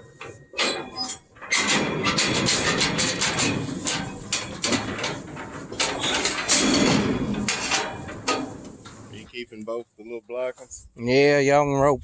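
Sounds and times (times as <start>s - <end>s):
metal livestock gates clanking: 0.0s - 9.3s
sharp metal knocks: 0.6s - 9.1s.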